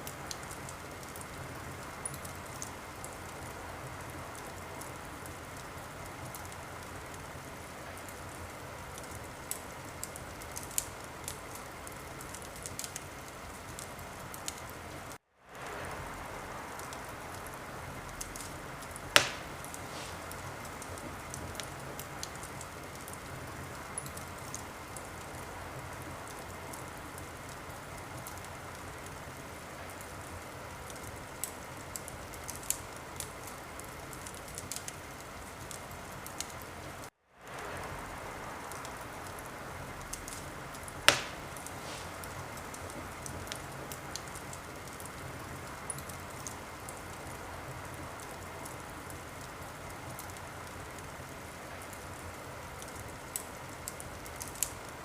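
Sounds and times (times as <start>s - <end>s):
wood fire crackling: 0.0s - 55.0s
loud sharp pop of fire: 19.1s - 21.0s, 41.0s - 42.9s.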